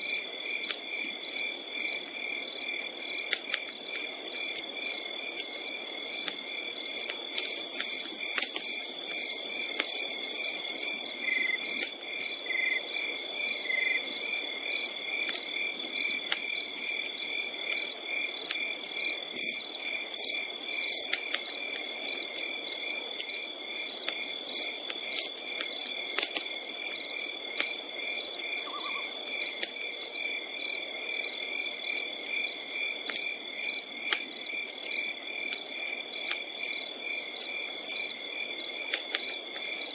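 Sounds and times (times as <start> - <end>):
crickets chirping: 0.0 - 39.9
campfire crackling and popping: 0.2 - 28.6, 29.2 - 39.9
high insect trill: 19.0 - 21.2, 23.4 - 25.4.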